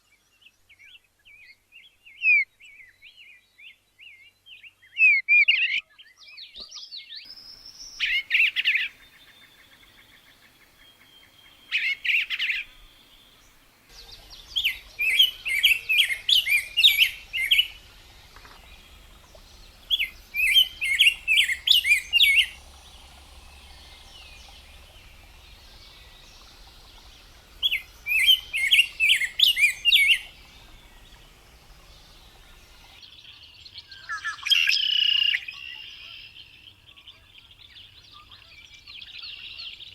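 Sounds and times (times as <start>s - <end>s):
birds chirping: 7.3s - 33.0s.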